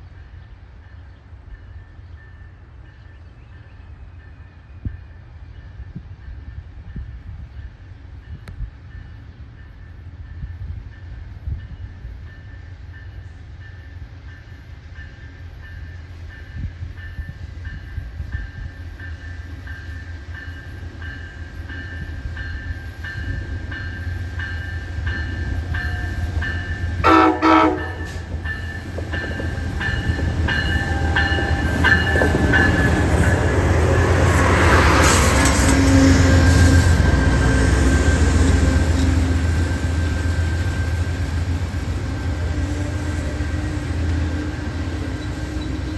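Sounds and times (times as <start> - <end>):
train rumbling and rattling: 0.0 - 45.9
locomotive horn blast: 26.9 - 28.6.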